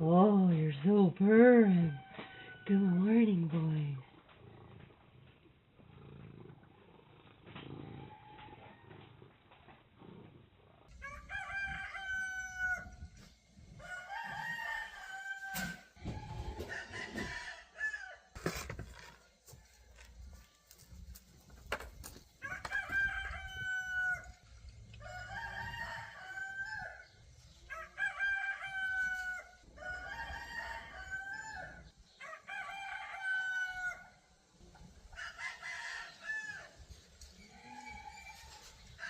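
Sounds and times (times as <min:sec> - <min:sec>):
roosters crowing: 0:01.8 - 0:02.9, 0:07.5 - 0:09.4, 0:10.9 - 0:20.8, 0:22.2 - 0:34.2, 0:35.0 - 0:39.0.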